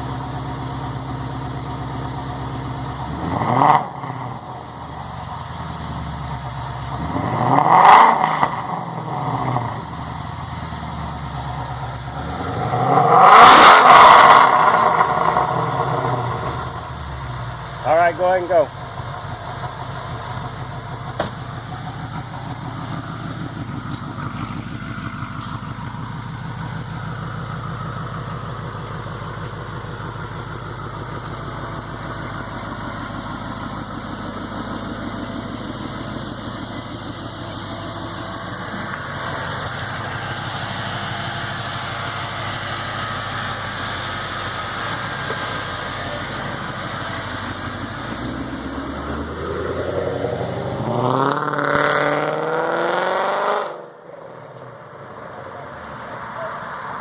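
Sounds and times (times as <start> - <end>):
car engine idling: 0.0 - 13.2, 14.4 - 52.1.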